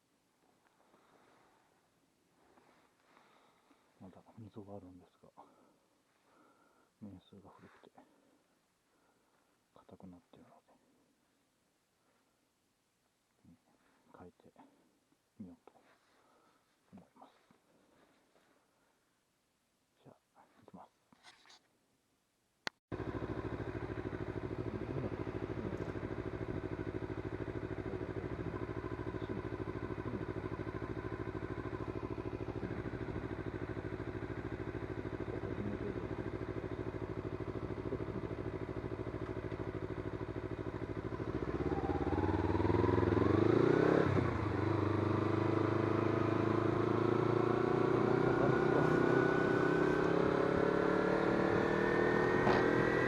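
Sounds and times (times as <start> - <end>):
motorcycle engine starting and revving: 22.9 - 53.0.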